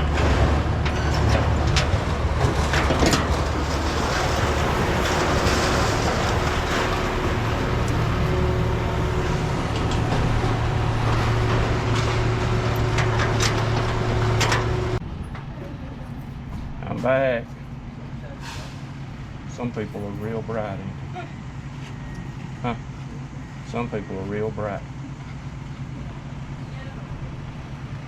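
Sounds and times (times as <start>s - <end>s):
metal knocks of scrap unloading: 0.0s - 15.5s
heavy engine running: 0.0s - 28.0s.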